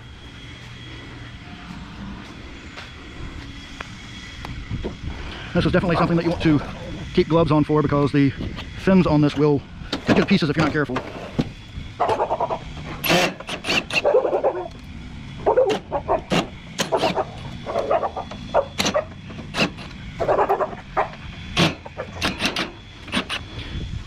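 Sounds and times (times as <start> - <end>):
parts scraping: 8.3 - 14.7, 15.4 - 23.7.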